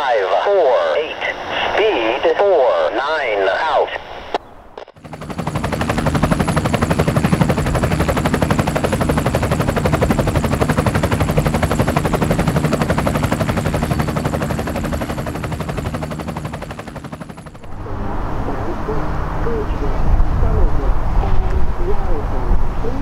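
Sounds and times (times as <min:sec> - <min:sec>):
steady low drone: 0:05.1 - 0:23.0.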